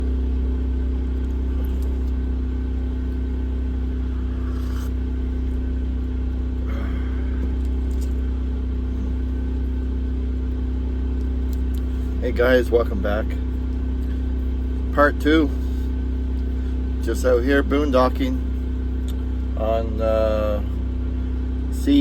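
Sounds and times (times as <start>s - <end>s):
generator humming: 0.0s - 22.0s.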